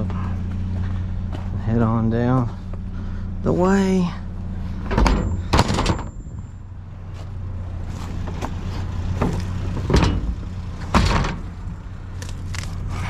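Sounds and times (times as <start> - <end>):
vehicle engine driving off: 0.0 - 13.0
sharp knocks and rattles: 4.8 - 6.6, 8.2 - 11.6.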